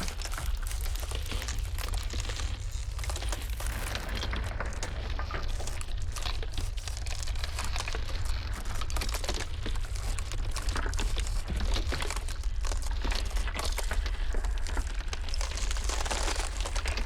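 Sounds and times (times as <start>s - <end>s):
ice crackling and popping: 0.0s - 17.0s
blizzard wind rumbling: 2.6s - 10.0s.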